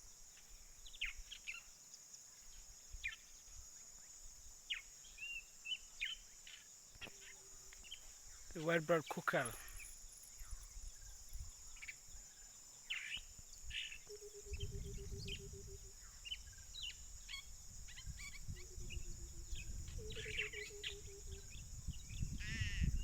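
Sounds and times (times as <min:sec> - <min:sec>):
hiss of insects: 0:00.0 - 0:23.0
birds chirping: 0:07.0 - 0:12.1, 0:12.9 - 0:23.0.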